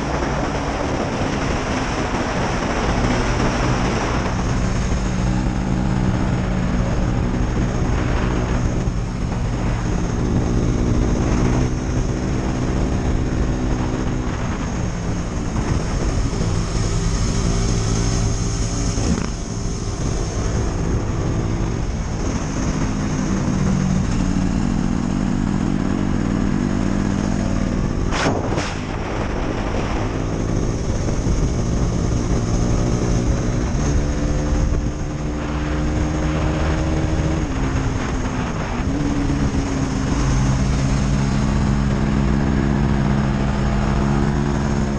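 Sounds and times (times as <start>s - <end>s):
motorcycle engine revving: 0.0s - 44.9s
sharp crack: 28.0s - 29.8s.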